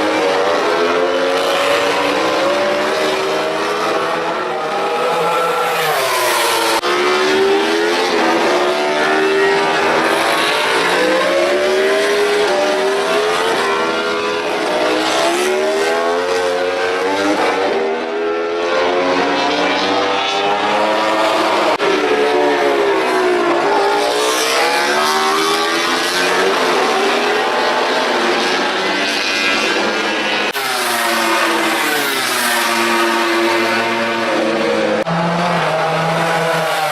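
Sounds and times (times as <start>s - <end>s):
racing motorcycle engine at high revs: 5.0s - 22.0s.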